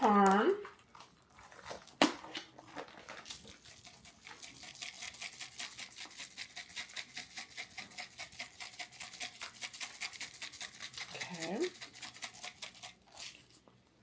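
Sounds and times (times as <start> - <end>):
cheese shaker rattling: 2.6 - 13.6.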